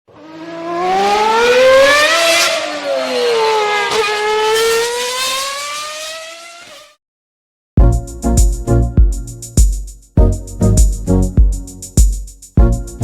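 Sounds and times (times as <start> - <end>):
car engine revving: 0.1 - 6.9.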